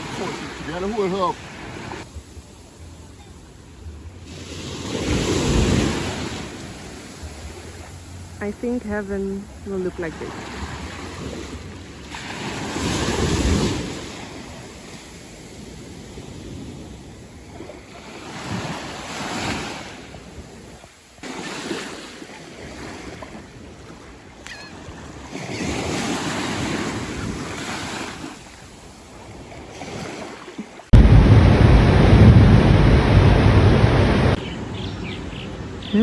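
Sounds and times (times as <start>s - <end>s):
sea waves breaking on beach: 0.0s - 36.0s
wind buffeting microphone: 30.9s - 36.0s.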